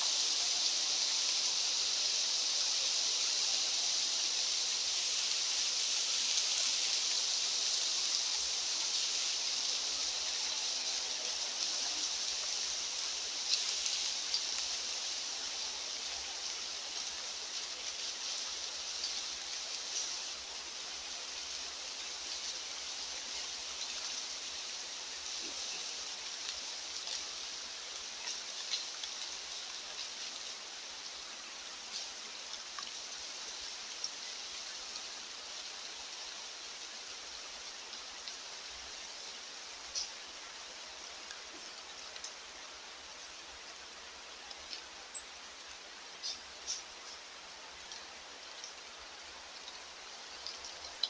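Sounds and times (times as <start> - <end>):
high outdoor hiss: 0.0 - 51.0
light ticks: 41.2 - 42.4, 44.4 - 48.9, 49.5 - 51.0.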